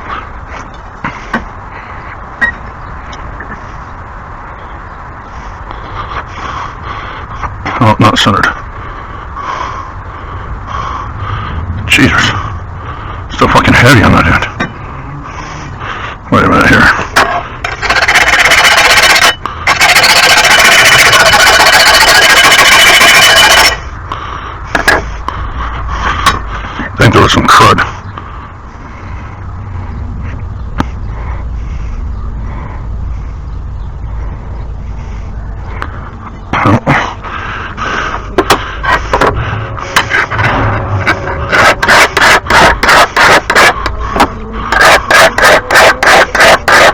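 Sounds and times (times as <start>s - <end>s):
metal scraping mower blade: 17.1s - 23.8s, 38.4s - 46.9s
power grinder grinding metal: 17.7s - 23.8s, 39.9s - 43.9s, 44.7s - 46.9s.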